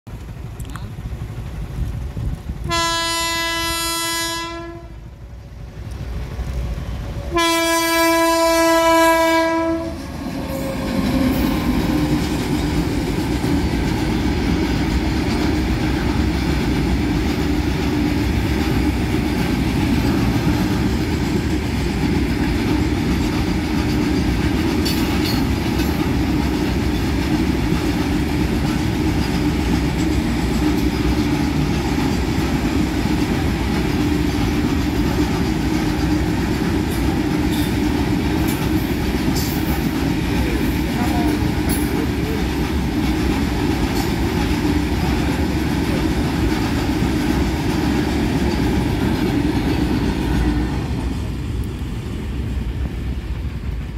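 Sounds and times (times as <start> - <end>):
train rumbling on track: 0.1 - 53.9
locomotive horn blasts: 2.7 - 5.0, 7.3 - 11.3.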